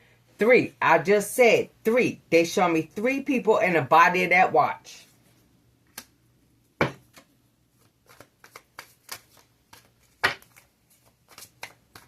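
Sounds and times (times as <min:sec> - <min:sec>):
cards flicking and tapping: 0:05.9 - 0:06.2, 0:06.8 - 0:12.0
cards slapping: 0:05.9 - 0:06.2, 0:06.8 - 0:12.0.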